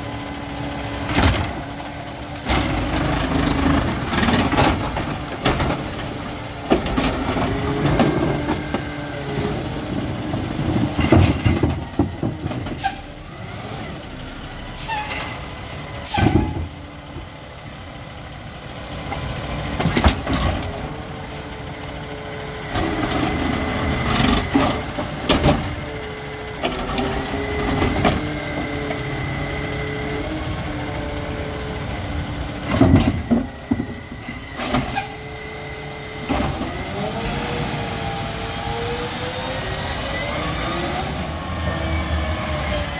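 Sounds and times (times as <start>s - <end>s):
garbage truck diesel engine: 0.0s - 42.9s
carts banging and knocking: 9.5s - 12.8s.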